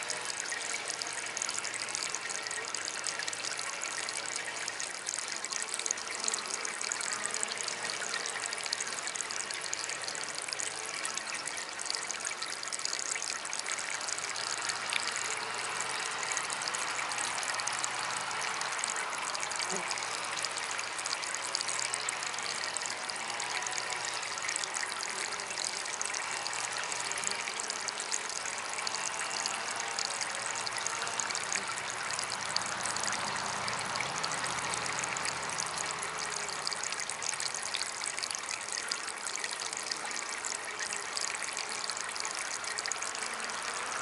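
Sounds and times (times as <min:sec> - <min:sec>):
water fountain trickling: 0:00.0 - 0:44.0.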